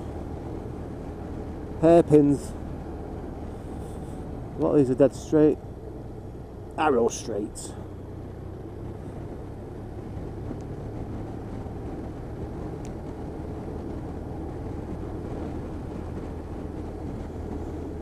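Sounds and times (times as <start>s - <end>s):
motorcycle engine cruising: 0.0s - 18.0s
road noise: 0.0s - 18.0s
wind noise: 8.8s - 18.0s.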